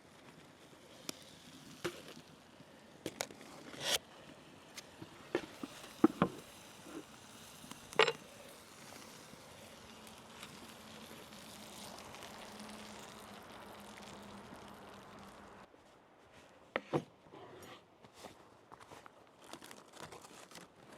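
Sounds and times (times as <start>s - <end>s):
sizzling hiss: 0.0s - 15.7s.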